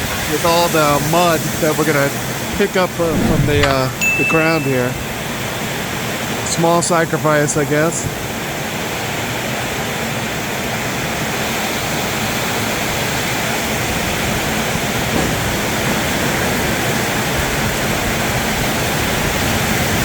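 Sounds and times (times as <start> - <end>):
heavy rain on a metal roof: 0.0 - 2.6, 7.3 - 20.0.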